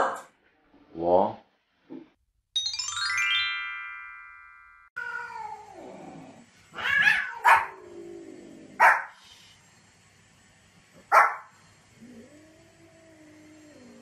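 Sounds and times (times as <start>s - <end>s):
falling run of chime notes: 2.6s - 4.9s
cat meowing: 5.0s - 5.8s, 6.7s - 7.8s
small dog barking sharply: 7.2s - 7.7s, 11.1s - 11.4s.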